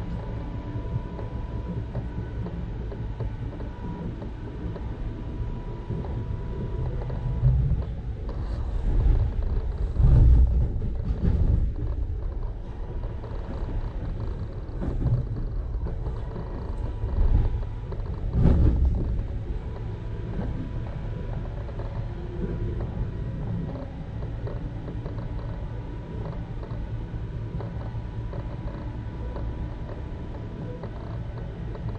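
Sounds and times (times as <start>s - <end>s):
faint thin whining tones: 0.0s - 9.8s
train interior low rumble: 0.0s - 31.9s.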